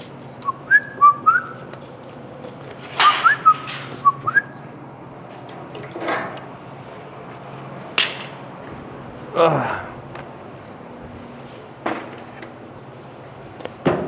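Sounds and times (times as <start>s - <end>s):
steady low hum: 0.0s - 14.0s
person whistling: 0.4s - 1.6s, 3.2s - 4.6s
sharp metallic clack: 8.0s - 8.4s.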